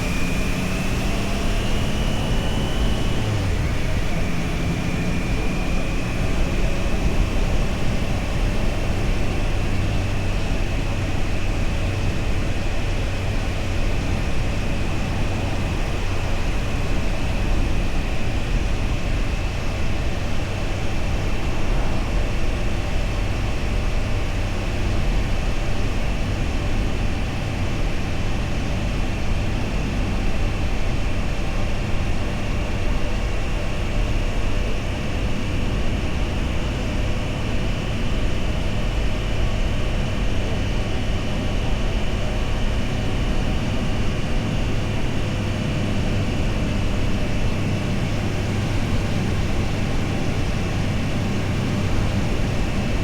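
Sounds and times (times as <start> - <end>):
motorcycle engine cruising: 0.0 - 12.4, 28.7 - 53.0.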